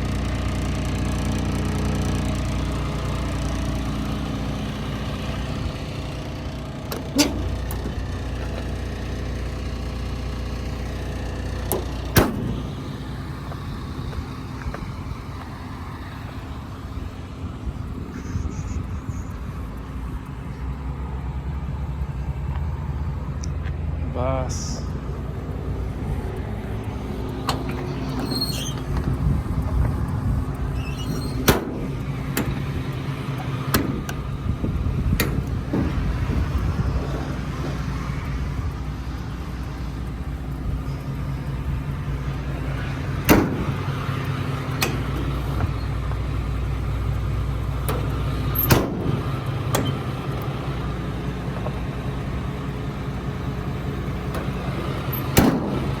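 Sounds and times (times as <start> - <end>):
diesel engine idling: 0.0 - 56.0
sharp clicks and knocks: 6.8 - 8.8, 11.4 - 15.6, 25.8 - 52.2, 53.0 - 56.0.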